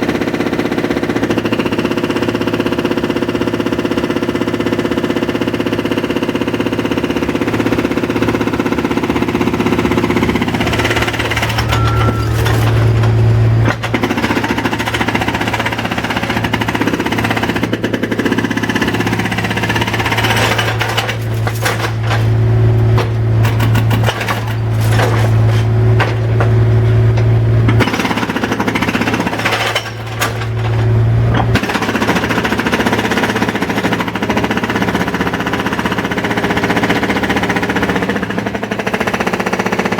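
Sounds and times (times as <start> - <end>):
jackhammer hammering: 0.0 - 39.9
machine engine hum: 7.6 - 34.2.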